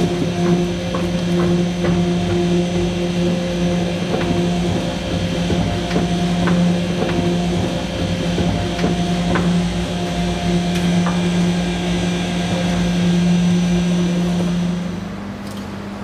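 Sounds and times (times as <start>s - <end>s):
sharp knocks: 0.0s - 11.5s
grinder motor hum: 0.0s - 16.0s.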